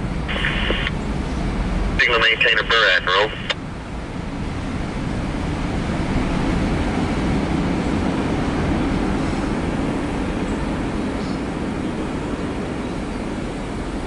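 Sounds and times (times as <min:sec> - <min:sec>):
train wheels rumbling on rails: 0:03.6 - 0:14.0.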